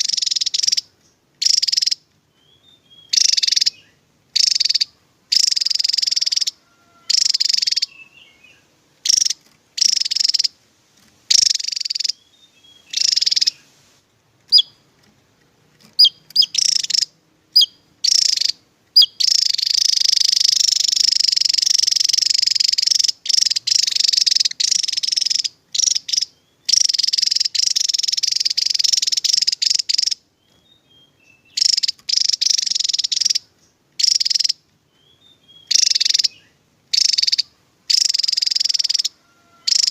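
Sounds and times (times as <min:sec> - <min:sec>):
bird calling in high-pitched trills: 0:00.0 - 0:10.6, 0:11.3 - 0:13.8, 0:14.5 - 0:14.8, 0:16.0 - 0:39.9
short sharp bird chirps: 0:11.3 - 0:14.8.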